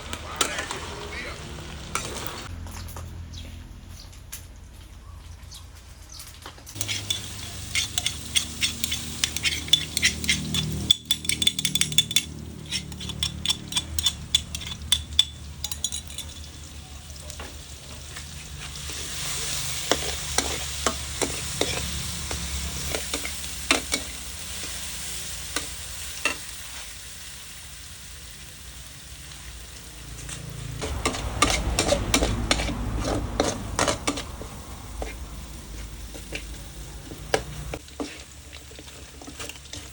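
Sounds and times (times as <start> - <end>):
chicken sizzling in a pan: 6.7 - 11.0, 16.4 - 39.9
utensil scraping a pan: 6.8 - 16.4, 18.1 - 26.9, 30.2 - 39.9.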